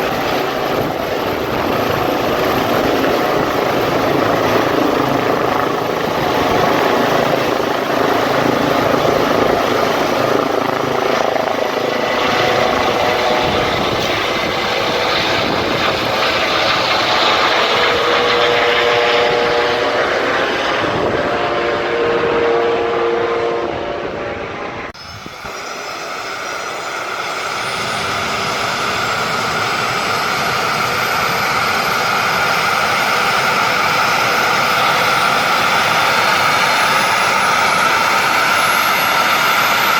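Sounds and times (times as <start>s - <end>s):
helicopter turbine and rotor: 0.0s - 39.9s
rising high tone: 9.7s - 29.5s.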